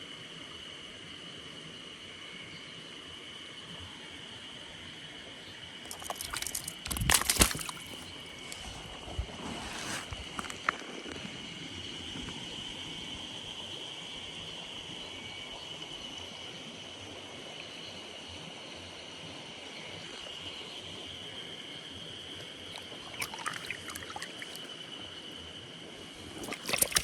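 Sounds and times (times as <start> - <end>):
splashes and knocks: 5.9 - 8.8, 22.7 - 24.7, 26.1 - 27.0
flowing mountain stream: 22.6 - 24.9, 26.0 - 27.0.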